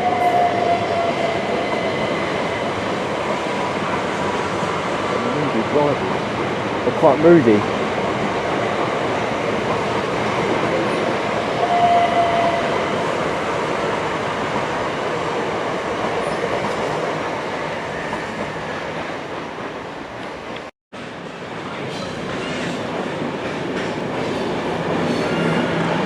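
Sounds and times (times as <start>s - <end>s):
train rumbling past: 0.0s - 26.0s.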